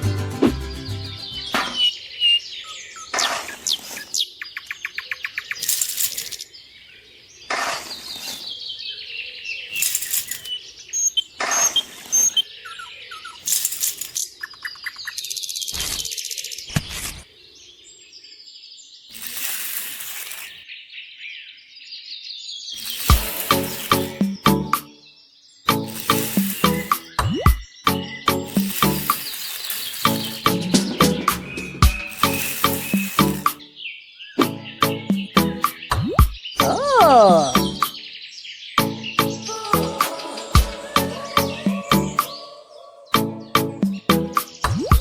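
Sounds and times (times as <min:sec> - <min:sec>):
birdlike chirping: 0:01.2 - 0:16.8
sharp bursts: 0:13.4 - 0:14.2, 0:19.1 - 0:20.6, 0:22.8 - 0:24.8, 0:25.7 - 0:27.1, 0:28.3 - 0:33.6.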